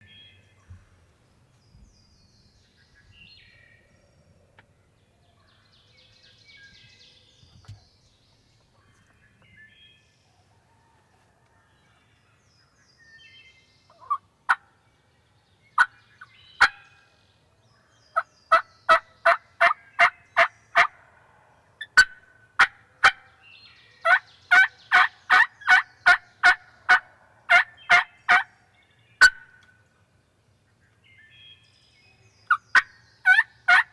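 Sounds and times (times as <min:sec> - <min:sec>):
faint songbird chirps: 0:00.0 - 0:33.9
turkey yelping: 0:14.0 - 0:14.6, 0:24.0 - 0:28.5, 0:29.2 - 0:29.6, 0:32.5 - 0:33.9.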